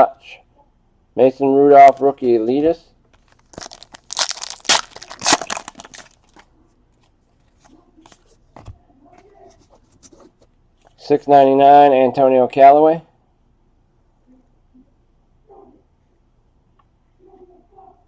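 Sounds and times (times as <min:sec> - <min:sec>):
wrapper crinkling and tearing: 0:03.2 - 0:06.5.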